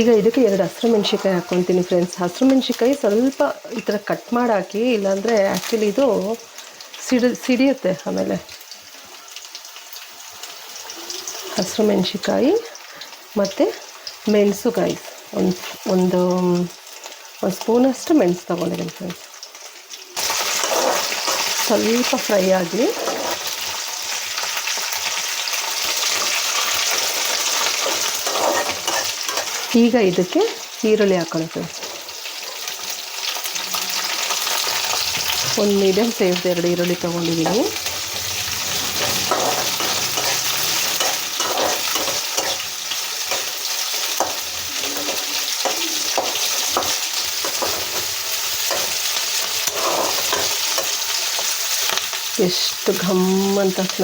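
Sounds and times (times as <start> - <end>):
spices sizzling in hot oil: 0.0 - 54.0
spatula scraping a pan: 20.2 - 23.8, 25.8 - 29.8, 37.4 - 52.1.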